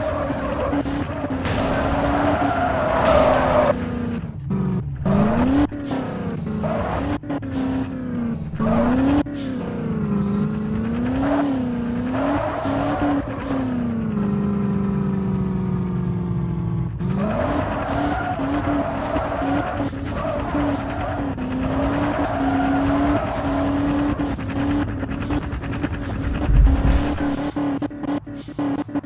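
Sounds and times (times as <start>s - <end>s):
tyre squeal: 0.0s - 4.3s, 10.3s - 14.0s, 17.0s - 29.0s
race car engines revving: 0.0s - 29.0s.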